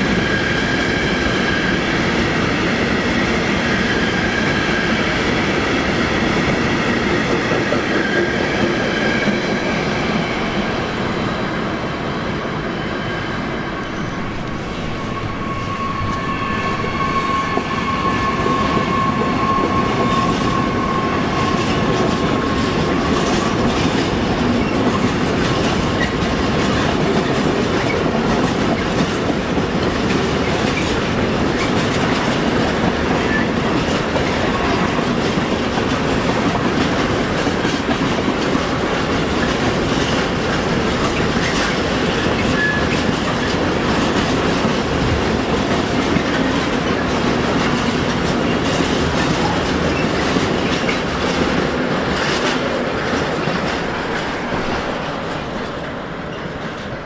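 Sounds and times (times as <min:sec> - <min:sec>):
train wheels clattering: 0:13.8 - 0:57.0.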